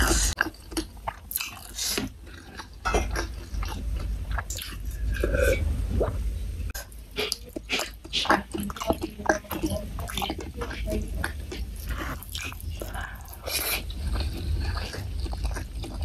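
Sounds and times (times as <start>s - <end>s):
chewing and lip smacks: 0.0s - 5.2s, 6.8s - 16.0s.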